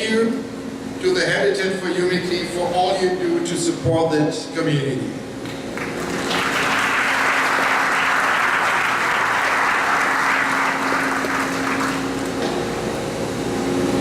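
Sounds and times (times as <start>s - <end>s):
audience applauding: 5.5s - 12.4s.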